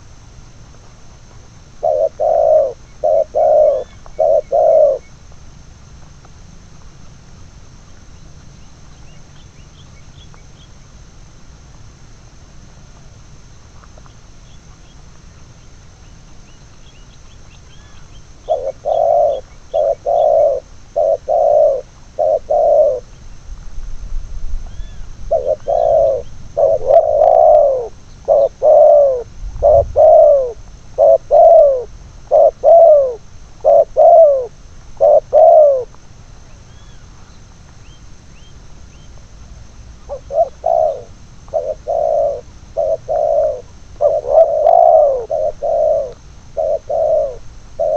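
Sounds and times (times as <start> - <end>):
small birds chirping: 1.3 - 5.3, 13.8 - 23.6, 24.5 - 39.4, 40.0 - 47.9
doves cooing: 1.4 - 5.2, 17.6 - 23.4, 24.6 - 37.2, 40.0 - 47.9.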